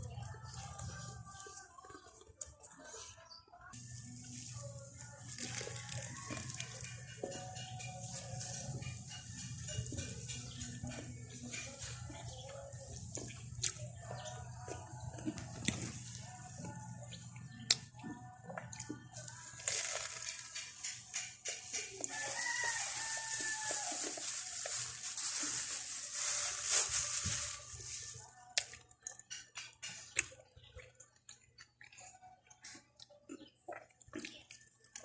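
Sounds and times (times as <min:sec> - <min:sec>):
rooster crowing: 0:05.6 - 0:06.8, 0:22.0 - 0:24.2.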